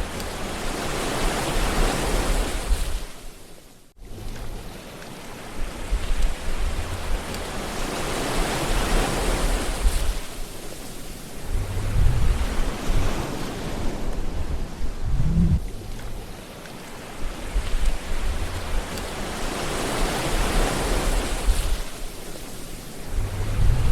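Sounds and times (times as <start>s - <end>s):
waves washing in: 0.0s - 23.9s
low rumbles: 11.3s - 16.4s, 17.2s - 19.4s, 23.0s - 23.9s.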